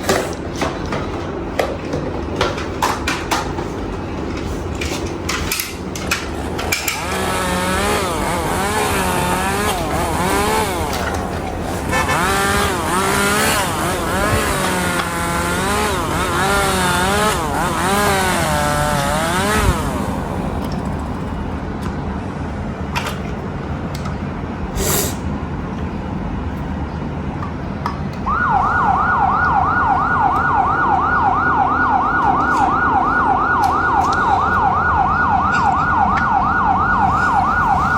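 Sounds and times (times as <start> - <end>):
vehicle hum: 3.8 - 37.9
fast yelp siren: 28.3 - 37.9
siren wailing: 28.3 - 37.9.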